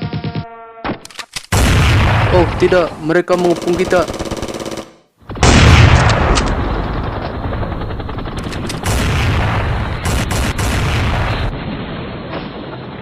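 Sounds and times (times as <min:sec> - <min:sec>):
rapid machine-gun fire: 0:03.4 - 0:11.5.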